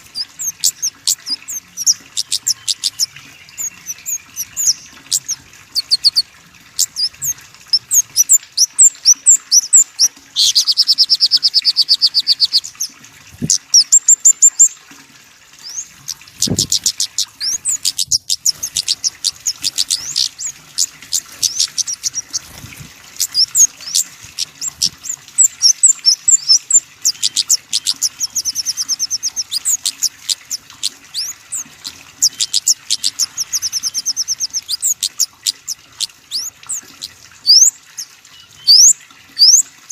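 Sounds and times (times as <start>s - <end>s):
songbird chirping: 0.0s - 13.0s
songbird trills: 0.0s - 14.7s, 15.6s - 22.6s, 23.2s - 39.7s.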